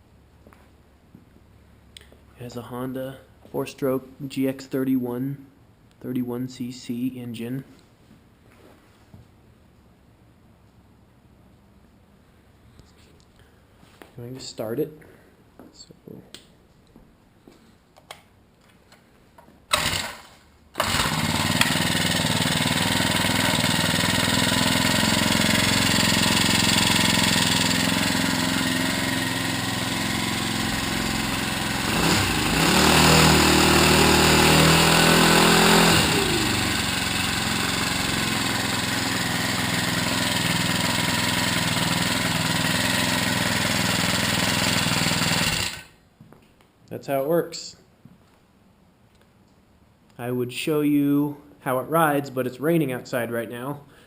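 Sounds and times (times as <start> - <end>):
small engine starting and revving: 19.7 - 46.0.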